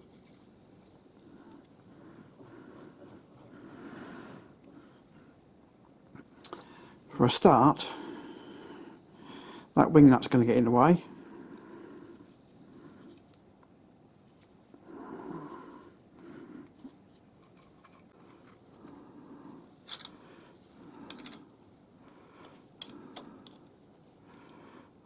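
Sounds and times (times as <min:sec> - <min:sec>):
soft breathing: 0:00.0 - 0:05.6, 0:06.2 - 0:07.1, 0:07.8 - 0:09.8, 0:11.0 - 0:13.4, 0:14.4 - 0:17.2, 0:18.0 - 0:25.0
metal tools clinking: 0:19.8 - 0:20.2, 0:21.0 - 0:21.4.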